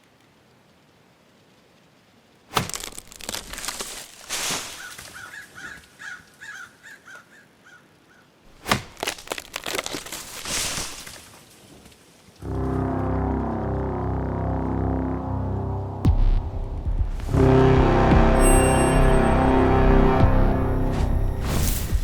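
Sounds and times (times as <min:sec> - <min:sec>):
sharp crack: 0:02.5 - 0:04.9, 0:08.5 - 0:11.2
crackling and breaking: 0:02.5 - 0:05.8, 0:08.5 - 0:12.4.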